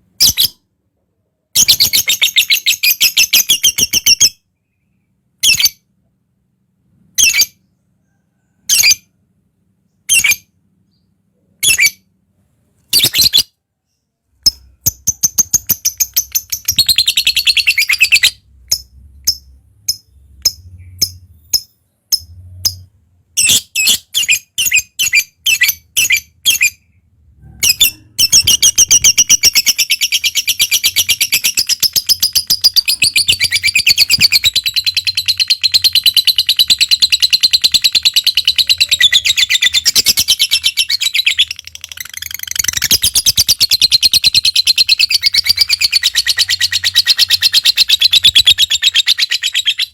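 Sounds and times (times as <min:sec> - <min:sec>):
lovebird chirping and chattering: 0:00.2 - 0:00.6, 0:01.6 - 0:05.8, 0:07.2 - 0:07.7, 0:08.6 - 0:09.1, 0:10.0 - 0:12.1, 0:12.9 - 0:49.9
lovebird chattering trill: 0:27.6 - 0:49.9.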